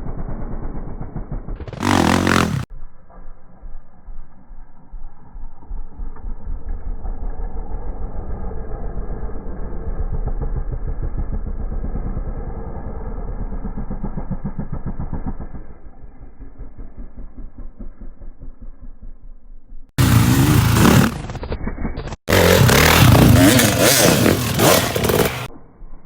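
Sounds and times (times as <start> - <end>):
dirt bike engine running: 0.0 - 2.7, 9.7 - 25.5.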